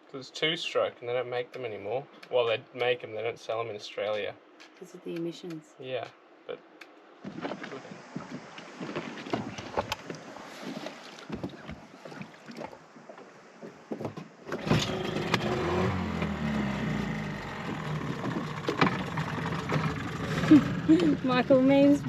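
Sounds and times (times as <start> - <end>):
gear knocking in a boat: 7.2 - 22.0
outboard motor running: 14.5 - 22.0.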